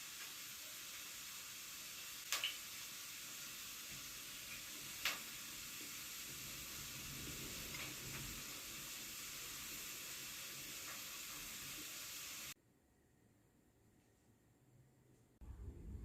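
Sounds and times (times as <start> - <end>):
food sizzling in a frying pan: 0.0 - 12.6.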